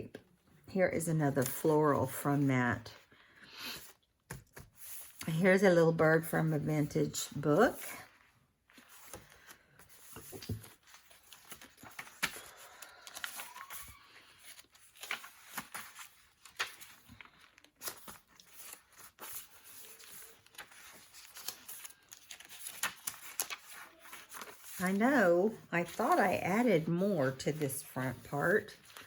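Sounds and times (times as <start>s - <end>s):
paper rustling and crinkling: 7.8s - 25.1s, 25.8s - 29.0s.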